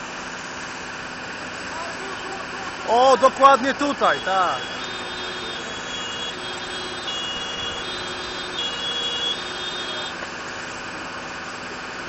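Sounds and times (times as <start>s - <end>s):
truck engine running: 0.0s - 12.0s
faint high steady tones: 2.0s - 10.2s.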